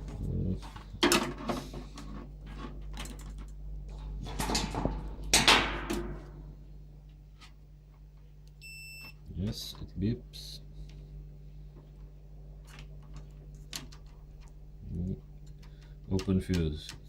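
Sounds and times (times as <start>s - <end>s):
multimeter continuity beep: 8.6s - 9.2s.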